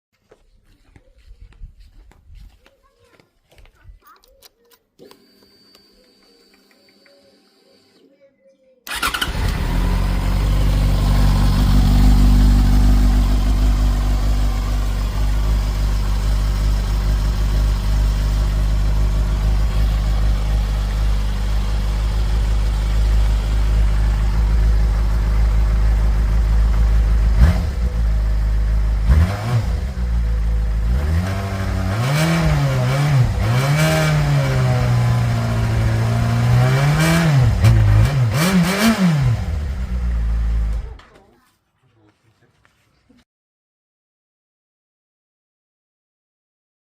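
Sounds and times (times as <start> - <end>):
motorcycle engine idling and revving: 8.9 - 41.2.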